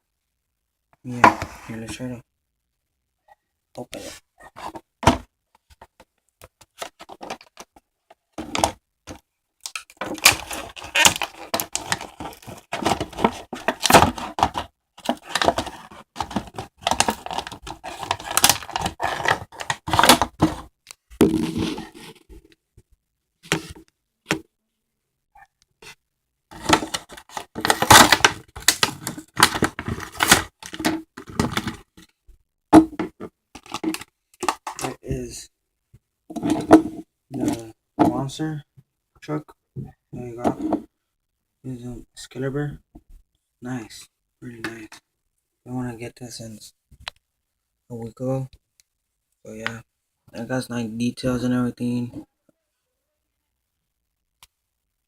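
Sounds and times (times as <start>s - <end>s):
packaging being torn open: 10.2s - 12.4s.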